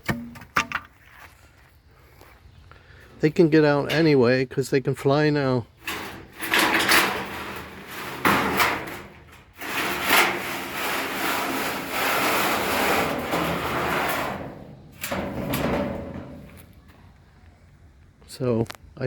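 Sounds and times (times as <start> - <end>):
wood scraping: 5.7 - 17.1.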